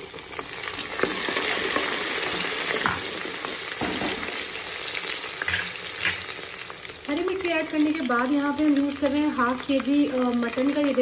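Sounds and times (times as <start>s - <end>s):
chillies sizzling in hot oil: 0.0s - 11.0s.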